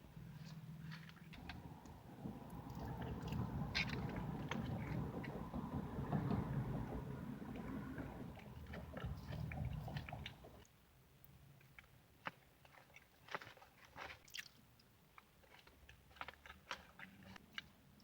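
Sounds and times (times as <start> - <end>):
low rumble: 1.4 - 10.6.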